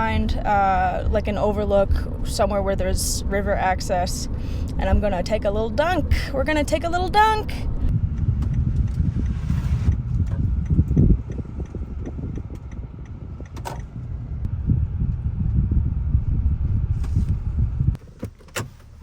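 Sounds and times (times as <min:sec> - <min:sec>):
vehicle cabin rumble: 0:00.0 - 0:19.0.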